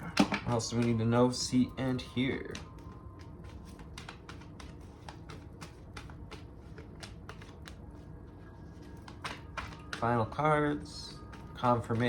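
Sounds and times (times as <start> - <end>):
cards being shuffled by hand: 0.0 - 12.0.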